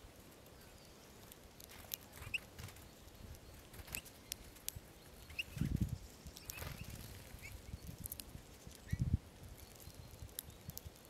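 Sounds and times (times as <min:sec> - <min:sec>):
birds pecking at seeds: 0:00.0 - 0:11.0.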